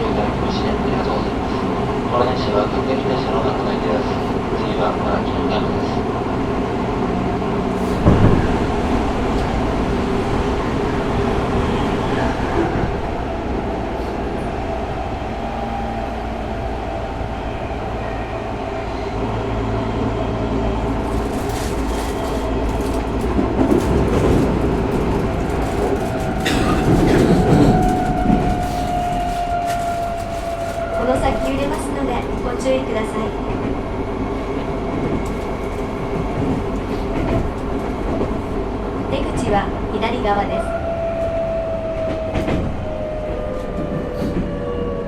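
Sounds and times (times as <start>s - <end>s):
subway wheels rumbling on rail: 0.0s - 45.0s
wheels clicking over rail joints: 20.8s - 33.7s.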